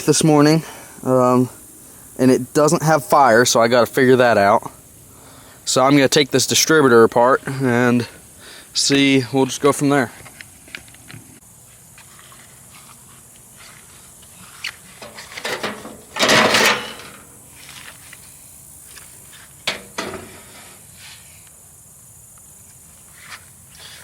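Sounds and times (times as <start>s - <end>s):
tools and metal parts clattering: 15.0s - 17.3s.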